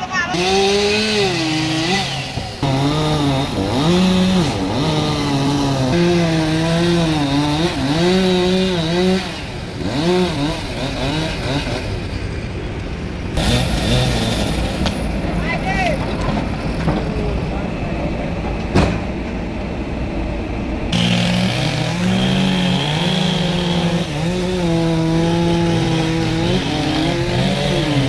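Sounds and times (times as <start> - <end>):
chainsaw revving: 0.2 - 12.5, 13.3 - 15.1, 20.9 - 28.0.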